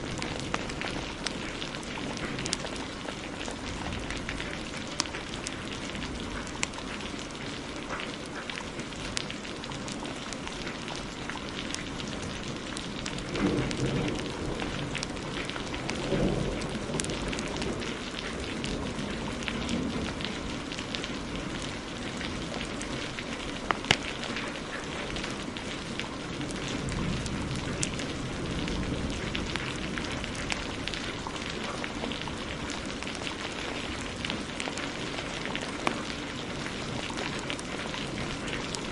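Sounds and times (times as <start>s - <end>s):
heavy rain: 0.0s - 38.9s
wood fire crackling: 0.0s - 38.9s
thunder rolling: 13.1s - 20.2s.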